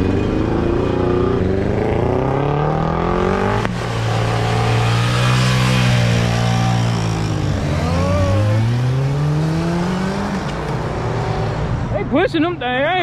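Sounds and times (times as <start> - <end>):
car engine revving hard: 0.0 - 11.7.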